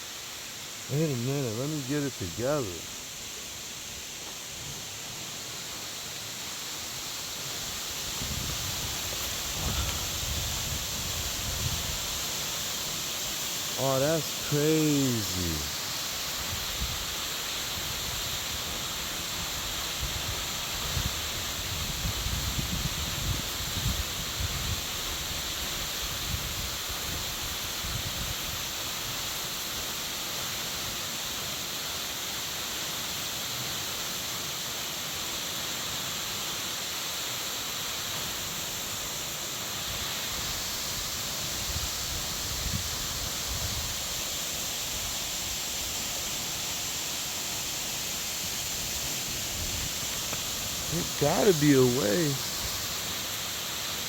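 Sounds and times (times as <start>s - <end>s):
flowing water rushing: 0.0s - 22.1s, 23.5s - 54.0s
wind buffeting microphone: 8.1s - 12.0s.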